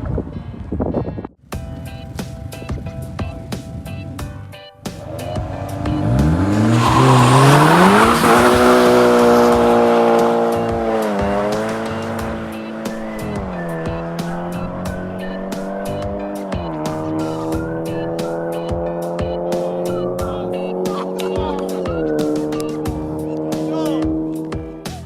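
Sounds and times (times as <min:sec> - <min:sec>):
background music with steady beat: 0:01.5 - 0:25.0
car engine revving hard: 0:05.0 - 0:24.5.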